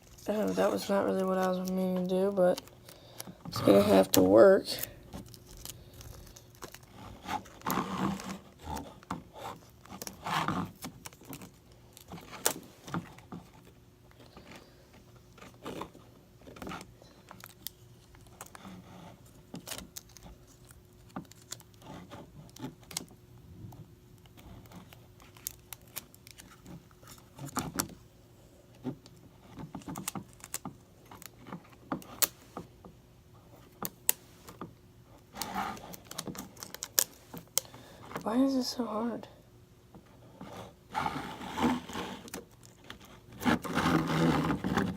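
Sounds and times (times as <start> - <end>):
sticky tape rustling and tearing: 0.0 - 13.7, 15.3 - 23.2, 24.2 - 28.0, 28.8 - 32.6, 33.7 - 38.4, 41.0 - 44.9
faint steady hum: 0.0 - 44.9.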